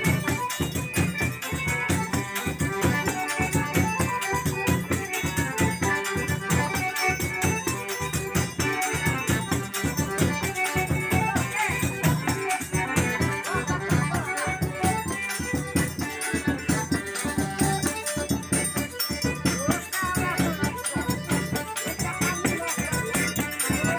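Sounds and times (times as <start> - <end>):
high percussion: 0.0 - 23.9
other instruments: 0.0 - 23.9
bass drum fast rhythm: 9.3 - 23.9.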